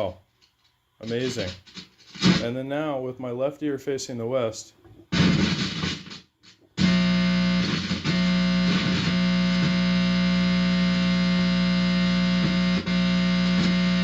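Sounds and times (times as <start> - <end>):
amplifier electrical buzz: 5.1 - 14.0.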